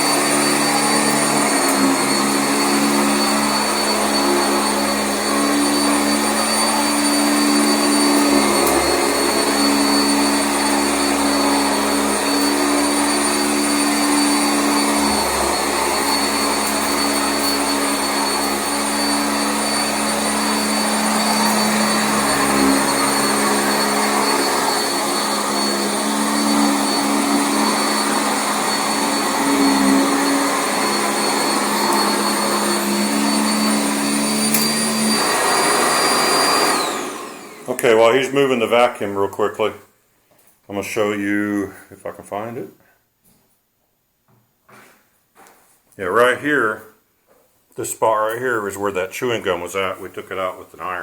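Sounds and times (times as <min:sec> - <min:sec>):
upright vacuum running over carpet: 0:00.0 - 0:38.0.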